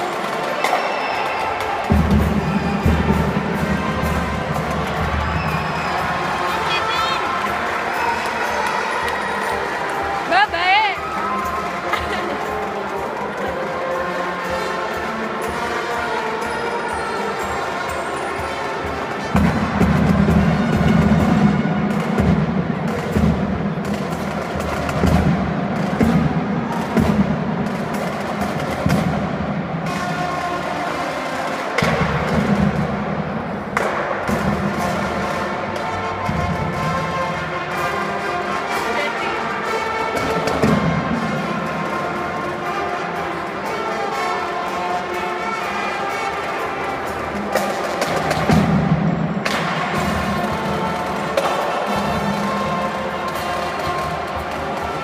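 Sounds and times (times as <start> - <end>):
marching drums playing: 1.7 - 16.5, 17.7 - 42.8
brass section chords: 34.3 - 48.8.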